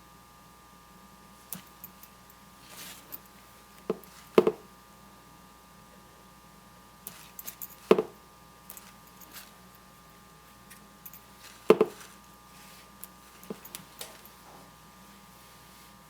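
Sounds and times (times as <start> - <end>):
faint steady hum: 0.0 - 16.0
tools tapping on hard surface: 3.9 - 4.6, 11.6 - 12.1.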